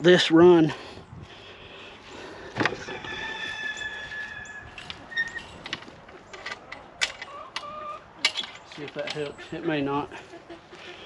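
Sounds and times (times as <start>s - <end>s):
gate squealing on its hinge: 3.6s - 5.7s
short squeak: 4.4s - 5.6s.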